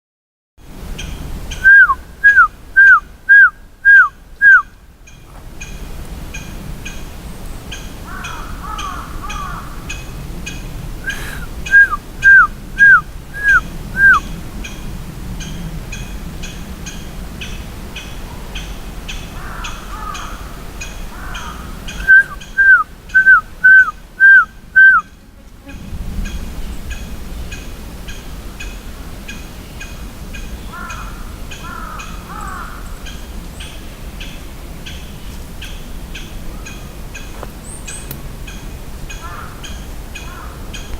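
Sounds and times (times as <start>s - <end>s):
warbling bird call: 1.5s - 4.7s, 11.0s - 14.4s, 21.1s - 25.2s
person whistling downward notes: 1.6s - 4.6s, 11.0s - 14.2s, 22.0s - 25.0s.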